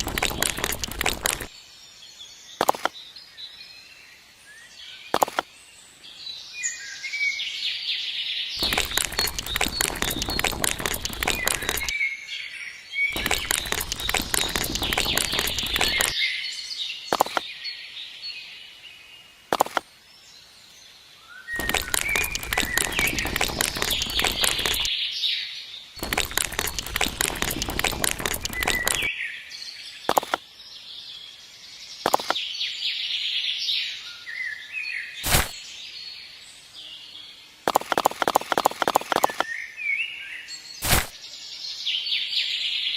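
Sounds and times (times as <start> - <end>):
rapid clicking clatter: 0.0 - 1.5, 8.6 - 11.9, 13.1 - 16.1, 21.6 - 24.9, 26.0 - 29.1, 37.7 - 39.4
small birds chirping: 0.0 - 7.4, 8.3 - 25.0, 25.6 - 42.9.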